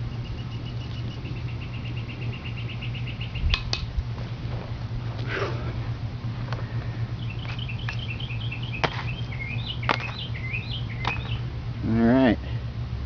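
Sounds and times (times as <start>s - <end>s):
songbird chirping: 0.0s - 3.7s, 7.1s - 11.5s
steady low hum: 0.0s - 13.0s.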